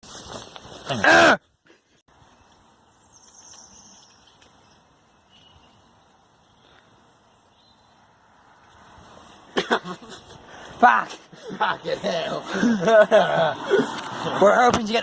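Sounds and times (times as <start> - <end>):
faint bird chirps: 2.3 - 8.0.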